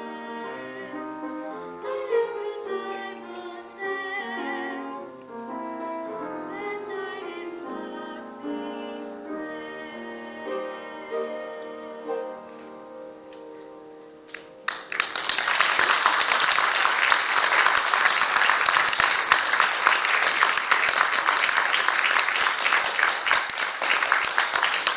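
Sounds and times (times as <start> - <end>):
audience applause: 14.3 - 24.9.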